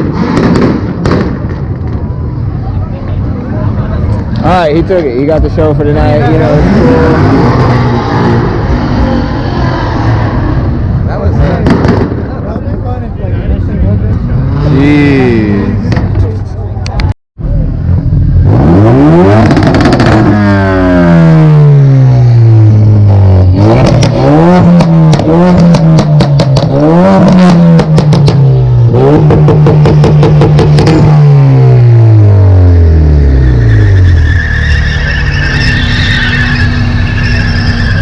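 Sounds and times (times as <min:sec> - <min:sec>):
car engine revving hard: 0:05.9 - 0:10.8, 0:18.3 - 0:38.0.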